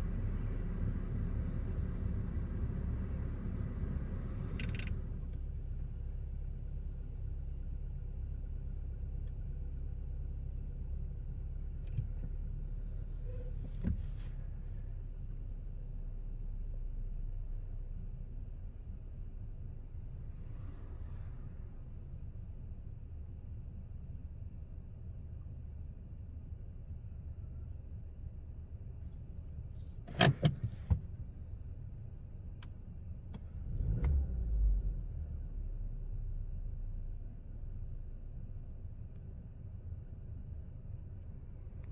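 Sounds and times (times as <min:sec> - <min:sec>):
sharp clicks and knocks: 0:30.1 - 0:31.1.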